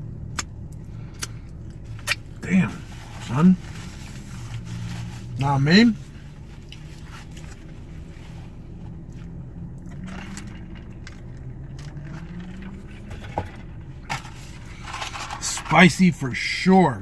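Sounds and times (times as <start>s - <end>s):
low hum: 0.0s - 17.0s
man chewing crispy food: 6.1s - 13.1s.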